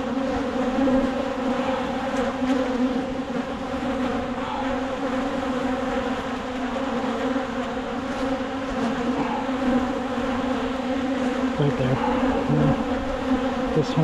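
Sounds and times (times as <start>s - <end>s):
bees buzzing: 0.0s - 14.0s.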